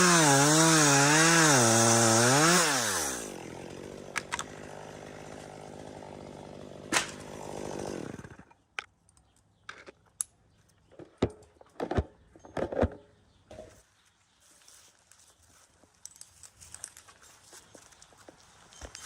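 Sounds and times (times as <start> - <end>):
chainsaw idling: 0.0 - 8.5.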